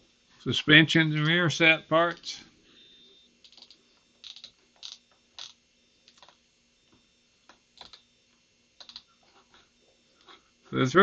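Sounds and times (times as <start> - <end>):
computer mouse clicking: 3.4 - 6.4, 7.8 - 8.0, 8.8 - 9.1.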